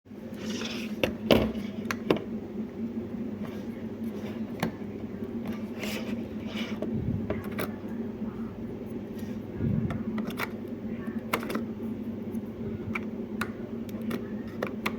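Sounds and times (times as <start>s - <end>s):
steady low hum: 0.1s - 14.9s.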